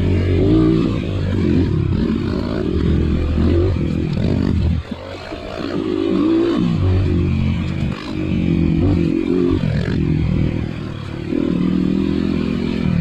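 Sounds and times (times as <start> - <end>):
dirt bike engine under throttle: 0.0 - 13.0.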